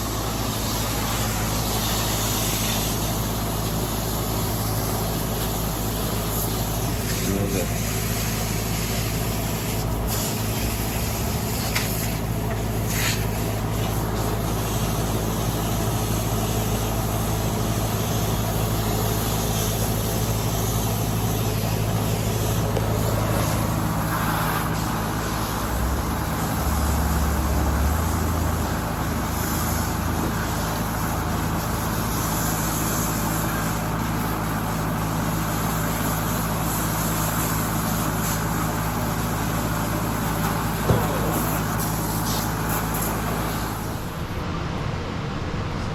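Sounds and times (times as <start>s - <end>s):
air conditioner unit humming: 0.0s - 45.9s.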